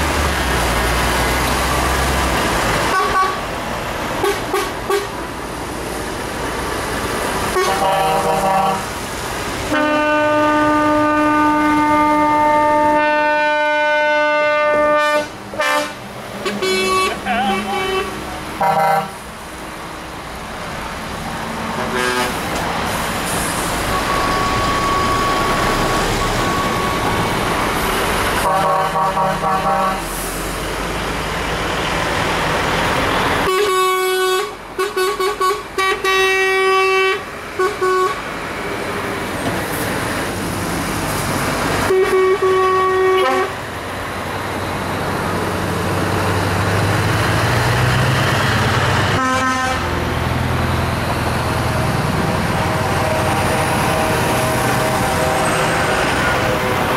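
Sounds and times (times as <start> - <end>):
truck engine pulling away: 0.0 - 4.2, 22.4 - 28.5, 30.0 - 33.5, 43.6 - 49.2, 49.8 - 56.9
engine and road noise: 0.0 - 56.9
truck air horns: 2.9 - 3.5, 4.2 - 5.2, 7.5 - 8.9, 9.7 - 19.2, 21.8 - 22.6, 28.4 - 30.4, 33.4 - 38.2, 41.9 - 43.6, 49.1 - 49.9, 52.5 - 56.9.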